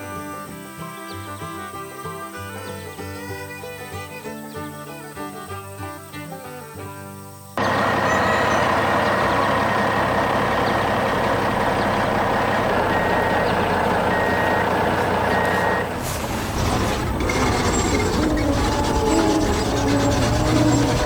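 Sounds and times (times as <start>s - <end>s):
reversing alarm beeping: 7.6s - 16.0s
construction vehicle engine running: 7.6s - 21.0s.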